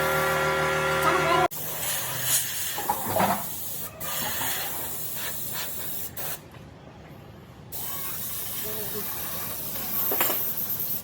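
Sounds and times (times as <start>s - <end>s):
compressed air hissing: 1.5s - 6.4s, 7.7s - 11.0s.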